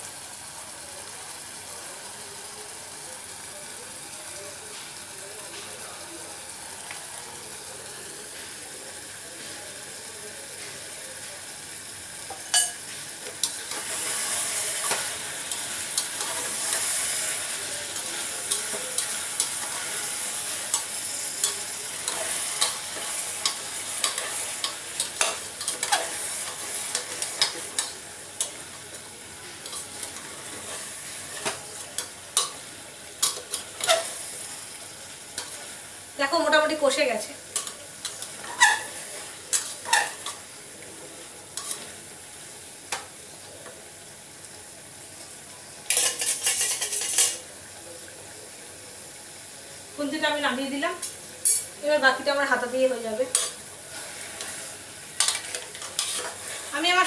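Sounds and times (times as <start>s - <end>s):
chicken sizzling in a pan: 0.0s - 57.0s
spatula stirring and knocking pan: 55.2s - 56.7s.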